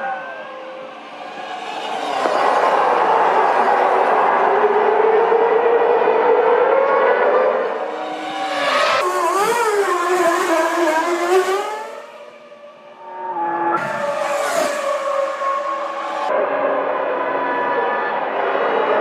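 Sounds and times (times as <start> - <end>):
racing car engines high whine: 0.0 - 19.0.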